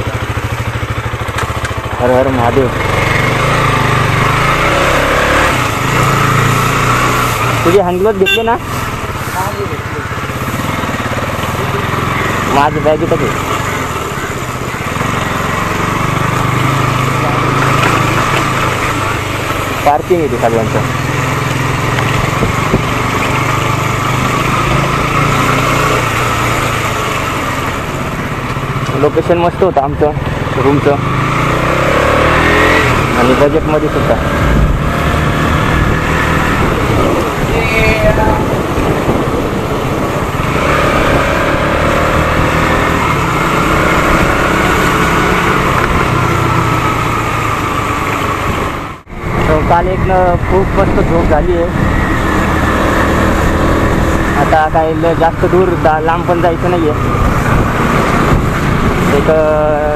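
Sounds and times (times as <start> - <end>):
motorcycle engine running: 0.0 - 59.9
wind and road noise: 0.0 - 59.9
rush of noise: 31.1 - 59.9.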